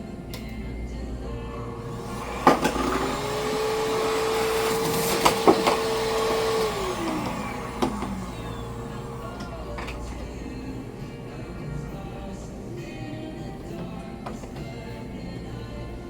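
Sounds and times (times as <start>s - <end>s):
blow dryer motor humming: 1.6s - 12.2s.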